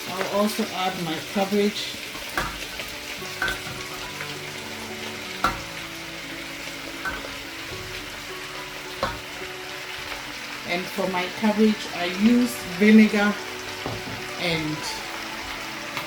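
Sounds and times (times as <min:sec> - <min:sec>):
vegetables and meat sizzling in pan: 0:00.0 - 0:16.0
utensil knocking on pan: 0:02.2 - 0:04.0, 0:05.4 - 0:05.8, 0:07.0 - 0:08.1, 0:09.0 - 0:09.3, 0:13.8 - 0:14.3.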